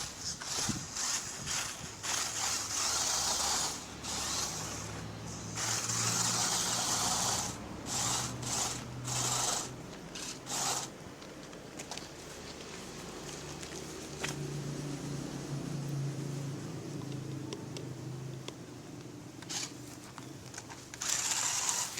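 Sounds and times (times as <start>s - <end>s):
electric motor whirring: 0.0s - 10.9s, 19.5s - 19.7s, 21.0s - 21.9s.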